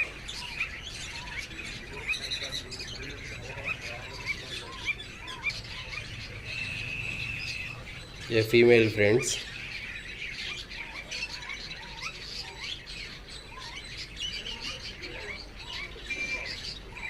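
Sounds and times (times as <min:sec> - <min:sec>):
cockatiels chirping: 0:00.0 - 0:17.0
harsh bird call: 0:00.0 - 0:17.0.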